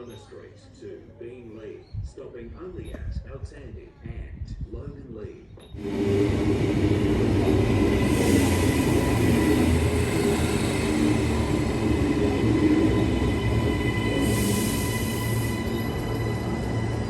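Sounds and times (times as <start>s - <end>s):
train motor whine: 5.8s - 17.0s
wheels rumbling on track: 5.8s - 17.0s.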